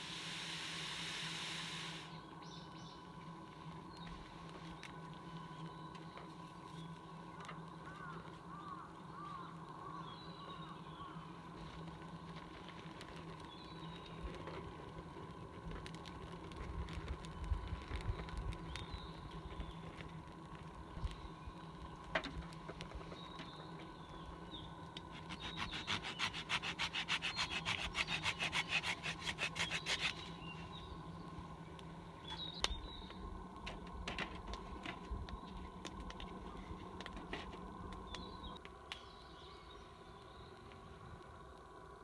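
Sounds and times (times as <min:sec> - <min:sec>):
hand saw cutting wood: 0:25.1 - 0:30.4.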